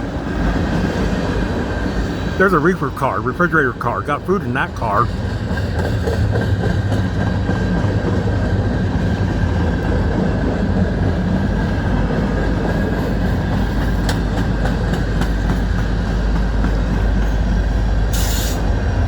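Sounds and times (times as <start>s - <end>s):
freight train wheels rumbling on rails: 0.0s - 19.0s.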